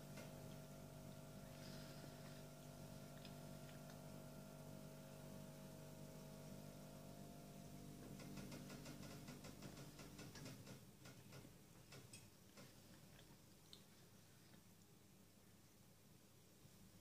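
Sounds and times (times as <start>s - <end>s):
faint low hum: 0.0s - 17.0s
soft wet chewing clicks: 0.2s - 1.5s, 2.1s - 4.6s, 10.2s - 15.6s.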